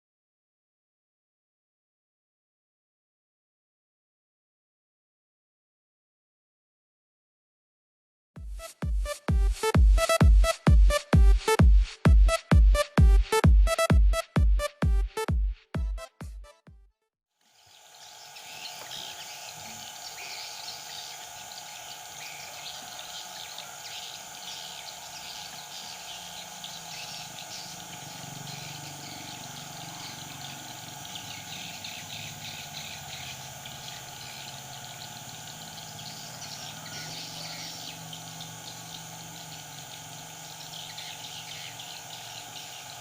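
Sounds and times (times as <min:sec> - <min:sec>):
outdoor background noise: 0:17.4 - 0:43.0
bulbuls calling and chirping: 0:17.8 - 0:43.0.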